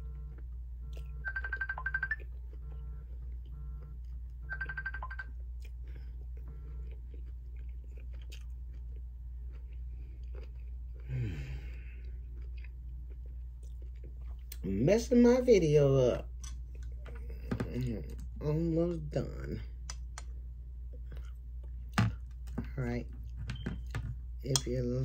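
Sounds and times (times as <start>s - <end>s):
person chewing food: 0.0s - 14.7s, 16.3s - 18.4s, 19.6s - 24.8s
steady low hum: 0.0s - 25.0s
phone ringtone chiming: 0.9s - 3.0s, 4.4s - 5.3s.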